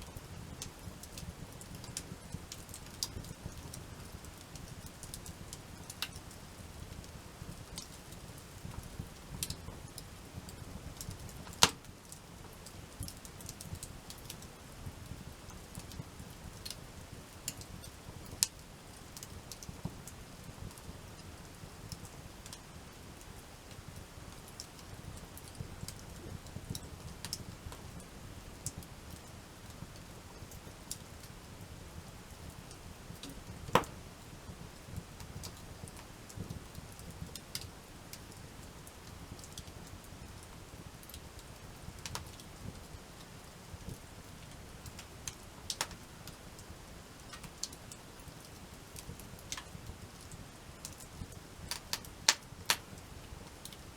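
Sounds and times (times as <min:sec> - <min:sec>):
campfire crackling and popping: 0:00.2 - 0:53.9
loud sharp fire pop: 0:33.8 - 0:34.0.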